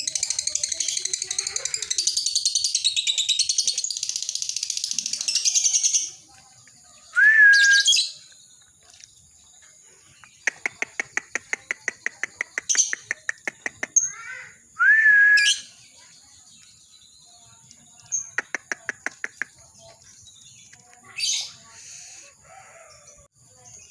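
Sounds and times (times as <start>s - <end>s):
rapid bird clicks: 10.2s - 14.0s, 18.3s - 19.6s
lovebird chattering: 10.2s - 14.4s, 18.1s - 19.9s.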